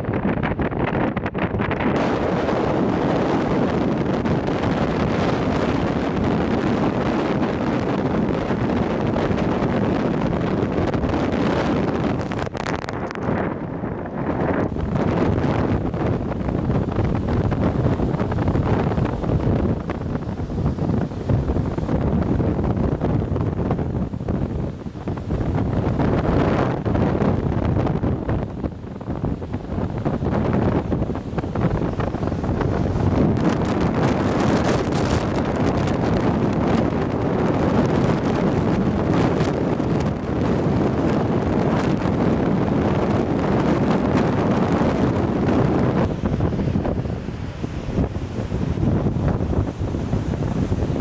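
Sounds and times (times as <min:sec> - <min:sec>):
storm waves rushing: 0:00.0 - 0:51.0
wind buffeting microphone: 0:00.0 - 0:51.0.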